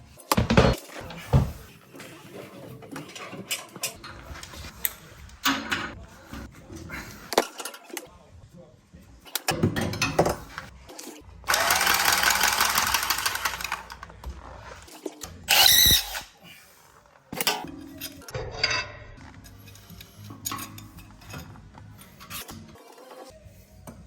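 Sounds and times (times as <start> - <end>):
handheld power tool running: 11.5 - 14.0.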